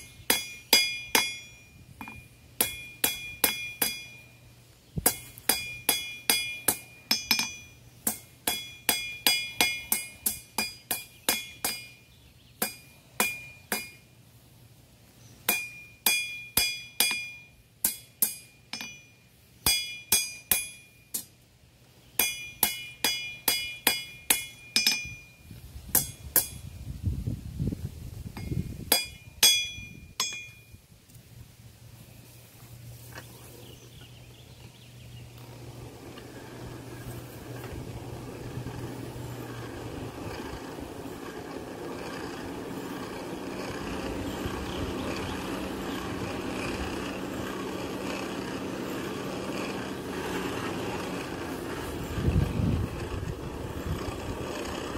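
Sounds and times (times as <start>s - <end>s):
hammer striking iron on anvil: 0.0s - 4.3s, 5.0s - 12.0s, 12.6s - 14.1s, 15.5s - 21.4s, 22.2s - 25.3s, 25.9s - 26.6s, 28.4s - 30.7s.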